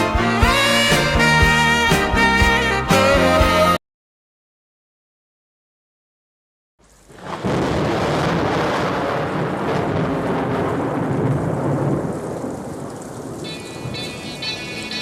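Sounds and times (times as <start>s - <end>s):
song music: 0.0s - 3.8s
heavy rain: 6.8s - 15.0s
thunder rumbling: 7.1s - 15.0s.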